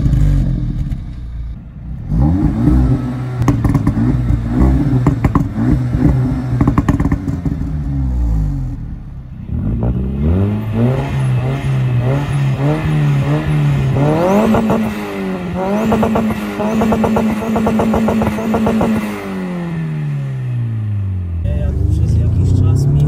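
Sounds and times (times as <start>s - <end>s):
car engines revving: 0.0s - 23.0s
sharp exhaust pops: 2.5s - 7.7s, 14.2s - 15.0s, 15.6s - 19.2s.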